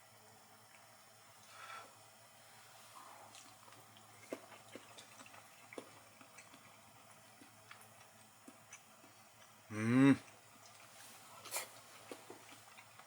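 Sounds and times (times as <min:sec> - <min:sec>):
faint hiss: 0:01.0 - 0:03.6.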